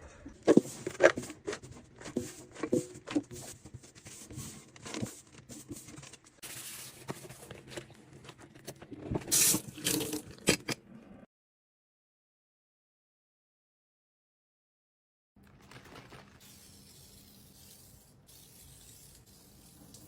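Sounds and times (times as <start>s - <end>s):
scrubbing: 15.7s - 20.0s
tap water running: 16.4s - 20.0s.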